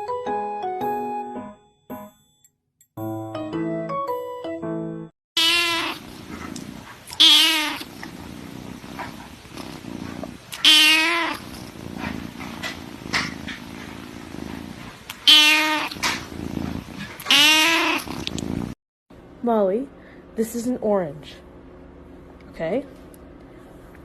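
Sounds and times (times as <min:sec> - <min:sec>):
cat yowling: 0:05.4 - 0:06.1, 0:07.1 - 0:07.9, 0:10.5 - 0:11.5, 0:15.1 - 0:16.0, 0:17.2 - 0:18.2.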